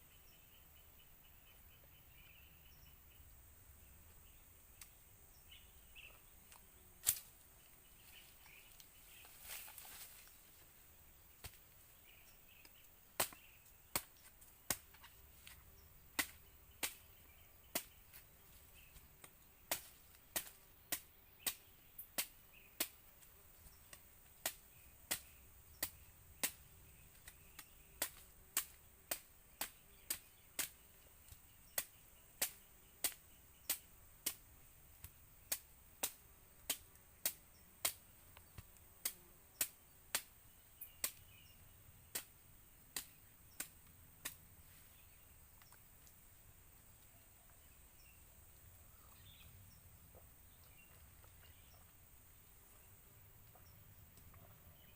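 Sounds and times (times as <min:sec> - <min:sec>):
sharp chopping strikes: 0:13.2 - 0:15.0, 0:16.1 - 0:17.1, 0:17.7 - 0:18.0, 0:19.7 - 0:23.0, 0:24.4 - 0:26.6, 0:27.2 - 0:30.8.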